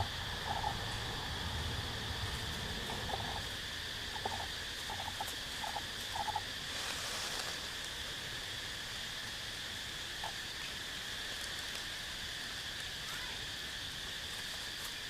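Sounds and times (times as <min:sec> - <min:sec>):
frog calling in quick pulses: 0:00.0 - 0:01.2, 0:02.8 - 0:06.5
high insect drone: 0:00.0 - 0:15.0.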